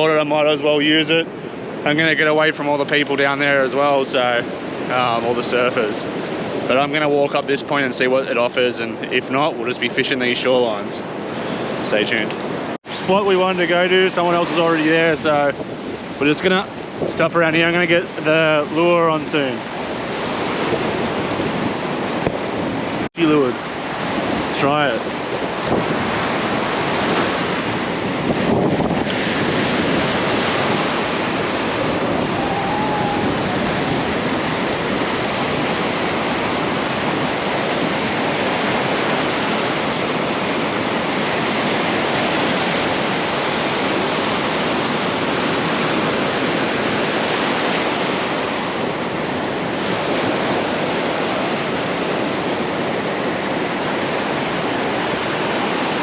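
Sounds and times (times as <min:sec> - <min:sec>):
surf washing onto beach: 0:00.0 - 0:56.0
wind on microphone: 0:13.8 - 0:18.0, 0:19.4 - 0:56.0.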